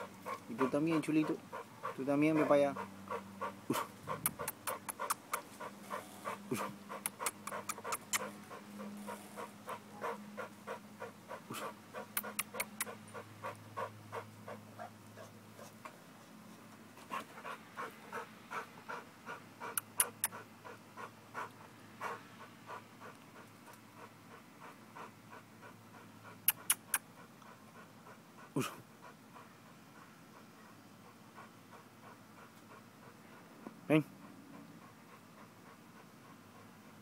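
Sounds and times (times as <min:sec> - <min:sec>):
dog panting hard: 0:00.0 - 0:37.0
sharp clicks: 0:04.3 - 0:05.5, 0:06.6 - 0:08.4.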